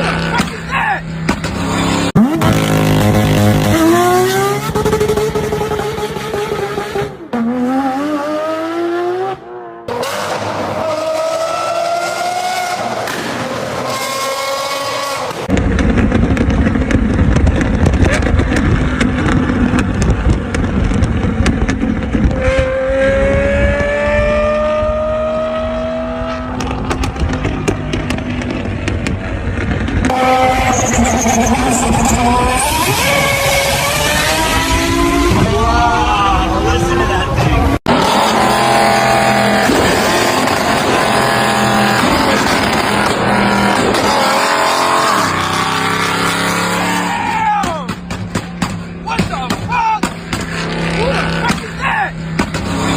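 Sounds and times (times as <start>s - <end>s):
road rumble: 0.0s - 52.9s
car engine accelerating: 1.3s - 47.2s.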